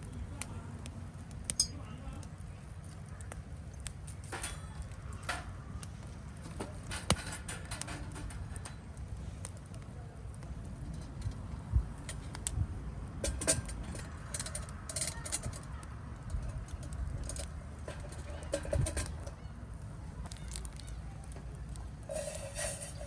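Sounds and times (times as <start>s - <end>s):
objects being handled: 4.1s - 8.9s, 22.1s - 23.0s
steady low rumble: 10.2s - 13.2s.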